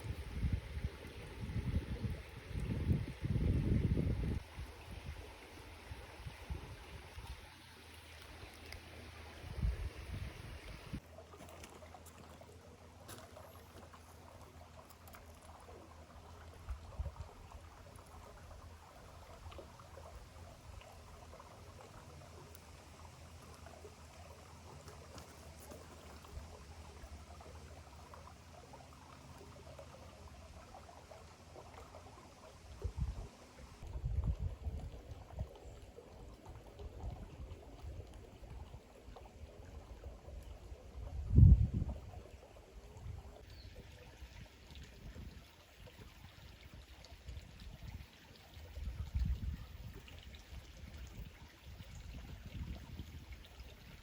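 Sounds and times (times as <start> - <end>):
creek water trickling: 0.0 - 54.0.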